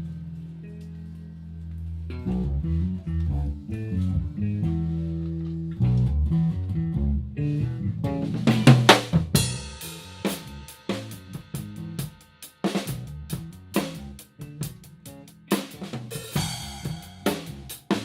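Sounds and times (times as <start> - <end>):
low guitar riff: 0.0 - 8.8
drum hits: 8.2 - 12.1, 15.6 - 18.0.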